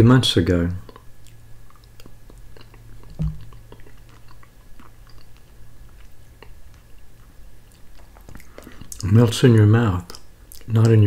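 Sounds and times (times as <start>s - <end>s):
person chewing: 0.8s - 9.1s.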